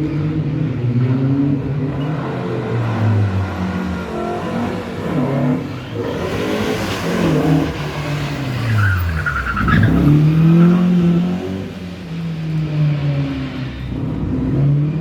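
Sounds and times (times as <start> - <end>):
rally car engine revving: 0.0 - 15.0
tyre squeal: 4.1 - 11.2.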